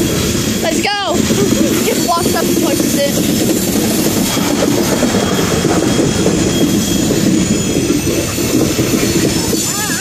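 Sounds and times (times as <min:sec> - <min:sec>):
faint high wheel squeal: 0:00.0 - 0:10.0
freight train wheels clattering: 0:00.0 - 0:10.0.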